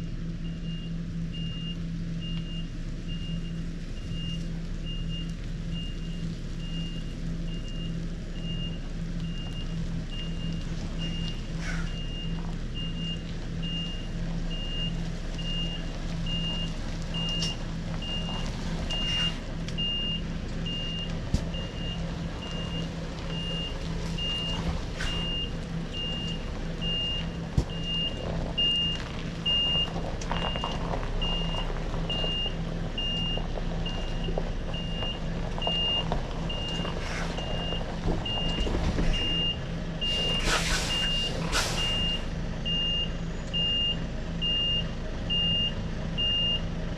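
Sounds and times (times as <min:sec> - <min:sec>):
diesel engine running: 0:00.0 - 0:46.9
reversing alarm beeps: 0:18.9 - 0:46.6
short hiss: 0:40.1 - 0:42.1.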